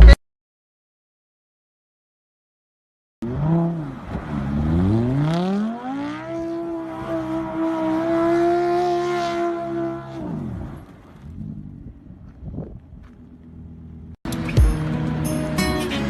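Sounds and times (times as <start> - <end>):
car engine revving: 3.2 - 12.5.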